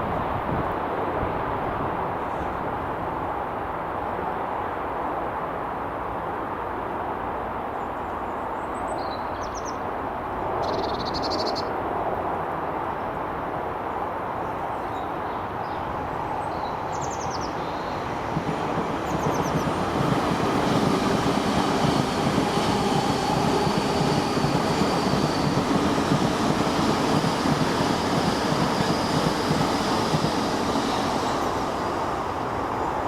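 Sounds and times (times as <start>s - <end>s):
train rumbling: 14.2s - 33.0s
small birds chirping: 14.8s - 21.4s.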